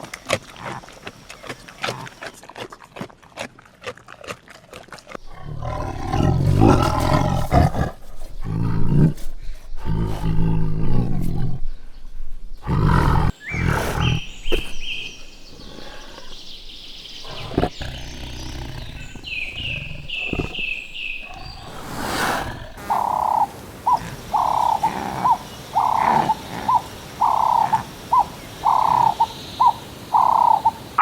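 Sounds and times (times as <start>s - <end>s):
animal deep pulsing calls: 17.2s - 30.8s.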